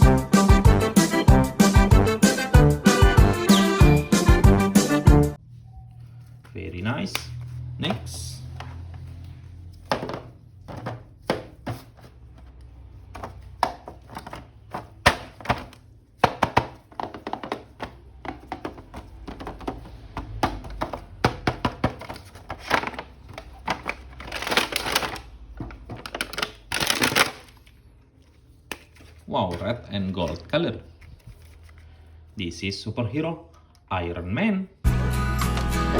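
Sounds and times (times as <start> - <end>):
plastic packaging rustling: 8.8 - 32.1.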